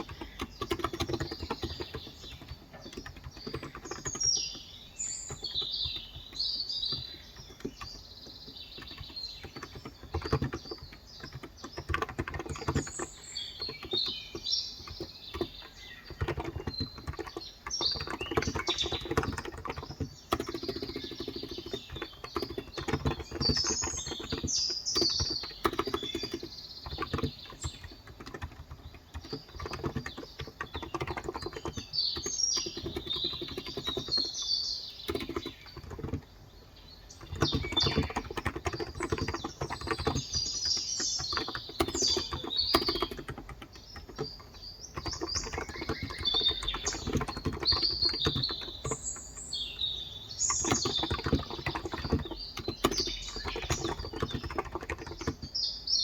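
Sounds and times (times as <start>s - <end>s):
keyboard typing: 0.0s - 55.8s
birds chirping: 0.0s - 56.0s.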